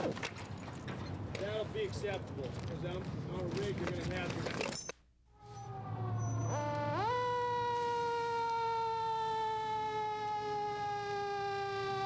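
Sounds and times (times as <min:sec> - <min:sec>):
siren wailing: 0:05.4 - 0:12.0.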